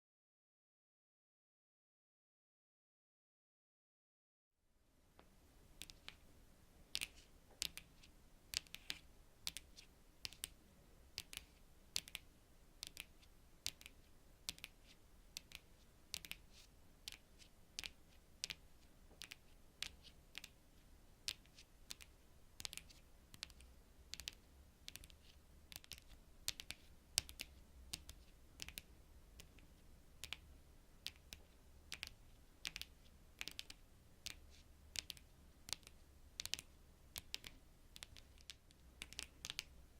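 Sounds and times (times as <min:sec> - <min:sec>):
fingernails tapping on cards: 0:31.0 - 0:39.7.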